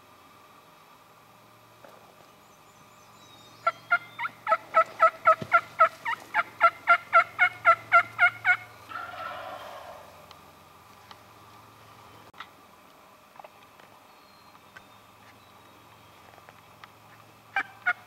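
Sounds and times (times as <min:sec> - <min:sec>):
turkey yelping: 0:03.6 - 0:10.2, 0:17.5 - 0:18.0.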